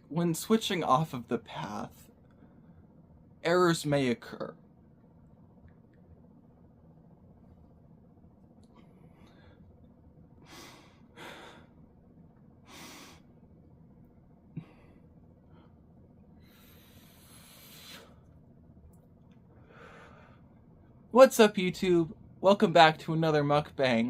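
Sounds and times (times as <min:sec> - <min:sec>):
person breathing faintly: 0:10.4 - 0:11.8, 0:12.6 - 0:13.3, 0:14.6 - 0:15.8, 0:16.4 - 0:18.3, 0:19.6 - 0:20.5.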